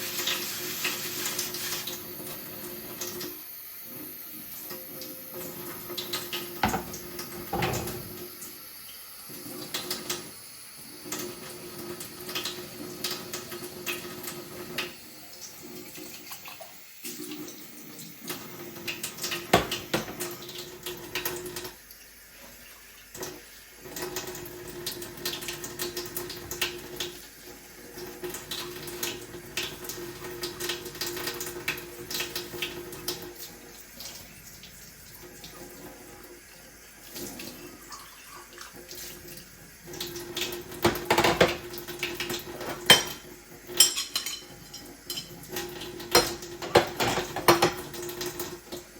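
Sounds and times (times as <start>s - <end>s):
tap running into sink: 5.7s - 8.3s, 18.3s - 21.7s, 24.0s - 27.2s, 39.9s - 48.9s
crockery clinking: 42.7s - 45.4s.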